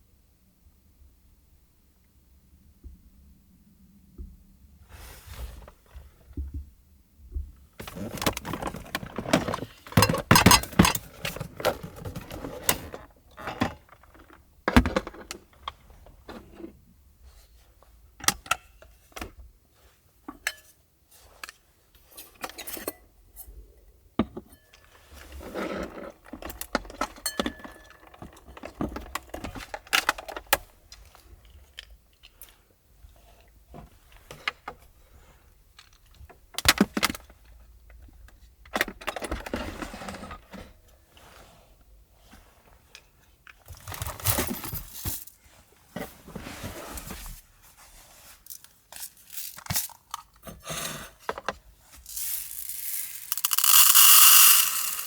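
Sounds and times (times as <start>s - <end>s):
rustling: 51.8s - 55.0s
small hard objects clicking and clinking: 52.1s - 55.0s.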